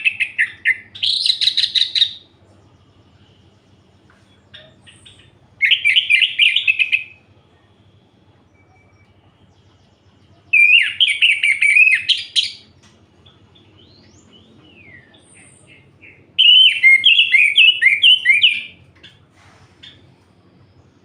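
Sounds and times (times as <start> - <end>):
faint whistled notes: 2.9 - 12.1.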